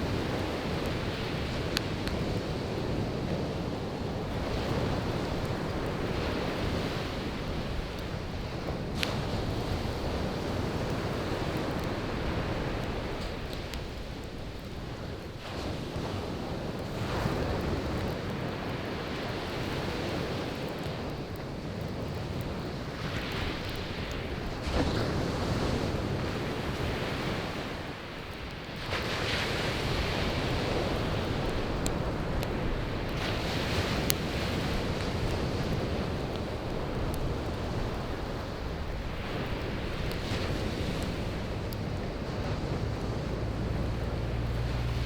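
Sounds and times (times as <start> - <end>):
firewood popping: 0.0 - 16.0, 29.8 - 45.0
surf breaking on beach: 28.8 - 45.0.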